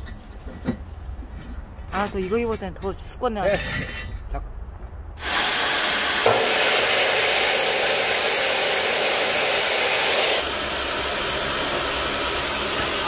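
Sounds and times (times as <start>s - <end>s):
loud rushing hiss: 5.2s - 13.0s.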